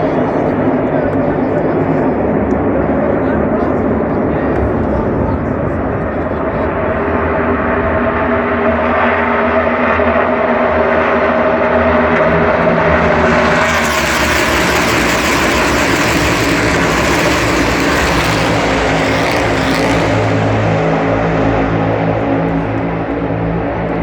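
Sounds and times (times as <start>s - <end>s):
race car engines passing: 0.0s - 24.0s.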